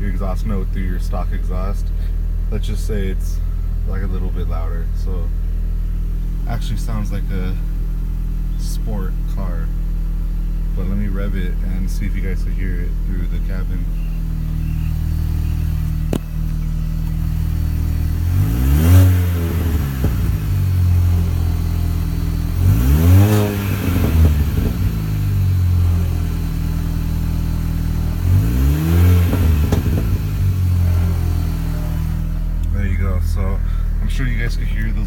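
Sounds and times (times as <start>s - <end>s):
car engine idling and revving: 0.0s - 35.0s
exhaust pops: 0.0s - 35.0s.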